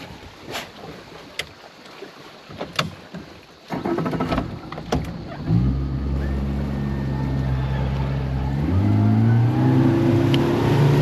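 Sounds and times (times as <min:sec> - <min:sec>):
boat motor running: 0:03.9 - 0:11.0.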